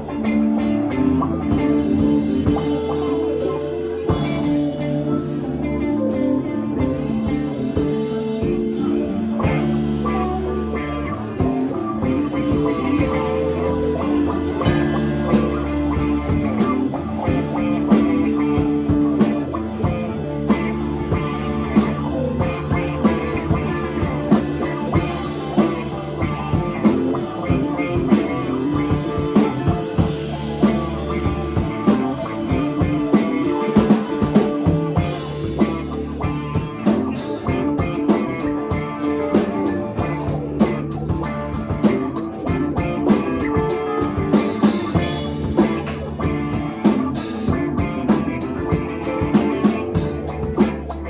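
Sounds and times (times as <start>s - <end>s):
bass guitar: 0.0s - 51.0s
drum-kit beat: 0.0s - 51.0s
electric guitar: 0.0s - 51.0s.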